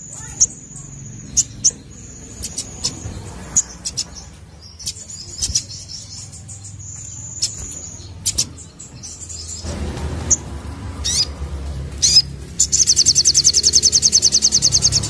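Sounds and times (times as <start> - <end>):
bird trilling: 0.0 - 10.4, 11.0 - 11.4, 12.0 - 15.0
bird chip notes: 12.0 - 15.0.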